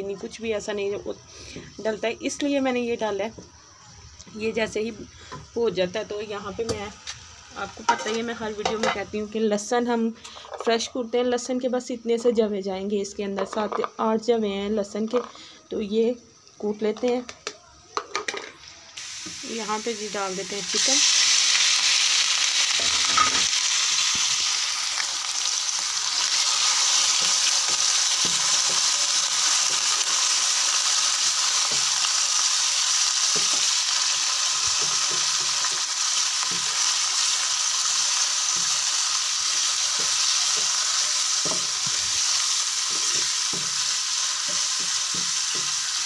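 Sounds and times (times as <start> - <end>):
chicken sizzling in hot oil: 4.4 - 9.1, 19.0 - 46.0.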